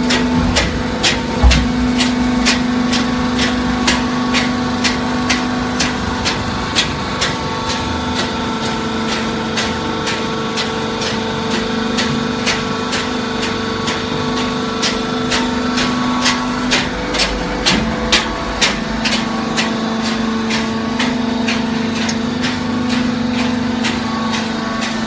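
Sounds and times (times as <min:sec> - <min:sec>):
hydraulic power unit hum: 0:00.0 - 0:25.0
low thud: 0:00.4 - 0:02.0.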